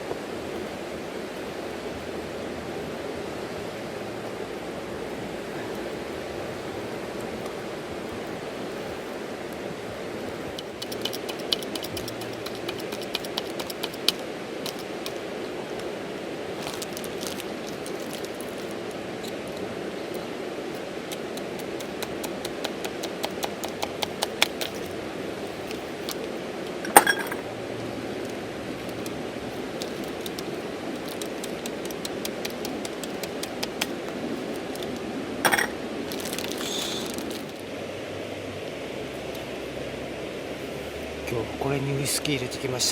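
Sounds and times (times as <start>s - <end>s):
river flowing over stones: 0.0s - 42.9s
small fire crackling: 5.0s - 27.0s, 28.2s - 37.7s.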